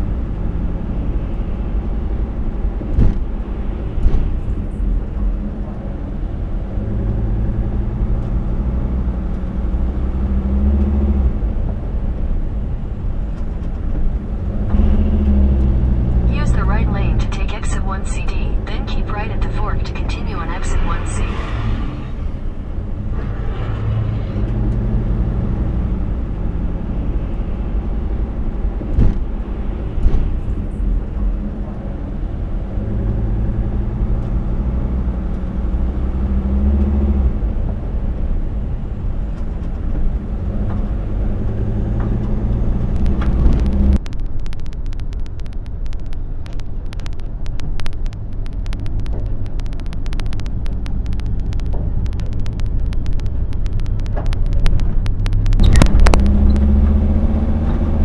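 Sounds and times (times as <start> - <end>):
car engine and road rumble: 0.0 - 58.0
harsh crackling of rapid ticks: 42.1 - 58.0.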